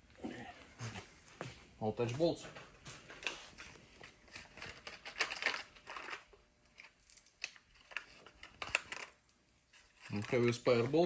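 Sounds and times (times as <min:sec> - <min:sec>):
metal parts clicking and rattling: 0:04.3 - 0:09.1.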